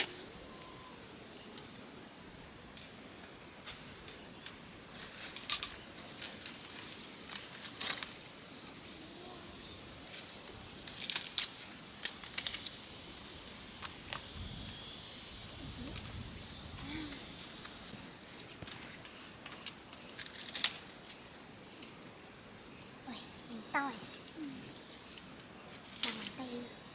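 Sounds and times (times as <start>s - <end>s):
insect chorus: 0.0s - 26.9s
pruning shears snipping: 25.8s - 26.6s.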